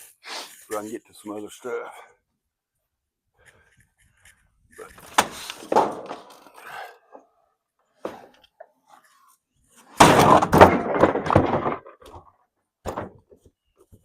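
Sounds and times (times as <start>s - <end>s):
refrigerator crashing to the ground: 10.0s - 11.9s.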